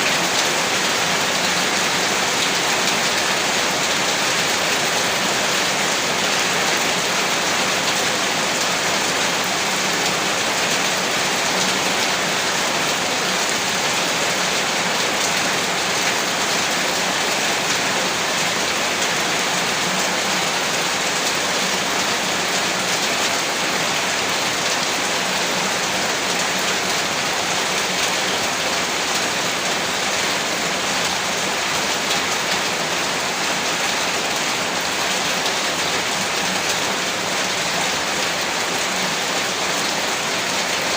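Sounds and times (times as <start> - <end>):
heavy rain on a roof: 0.0 - 40.9.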